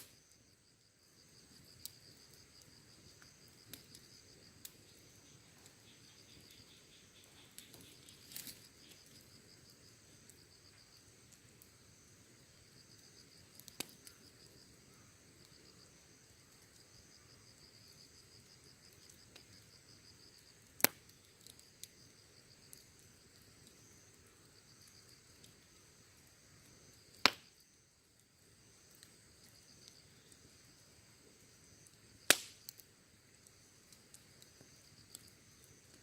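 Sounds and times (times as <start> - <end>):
faint fire crackles: 0.0 - 36.0
insects chirping: 0.0 - 36.0
wood fire popping: 0.0 - 36.0.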